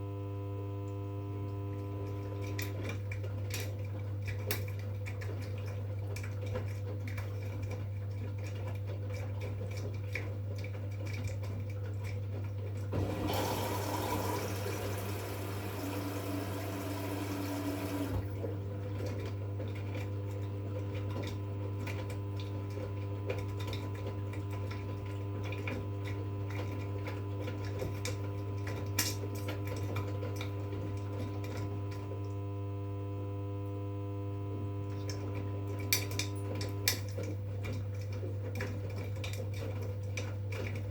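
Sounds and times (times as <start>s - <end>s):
washing machine hum: 0.0s - 40.9s
water rushing in: 13.0s - 18.3s.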